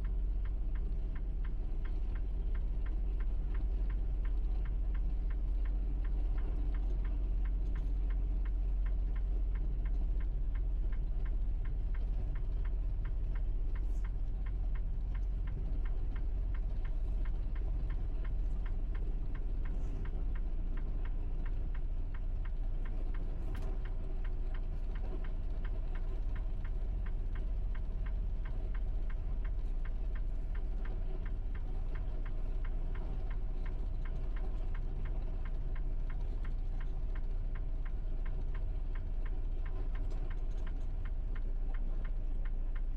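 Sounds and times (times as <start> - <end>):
diesel engine drone: 0.0 - 42.9.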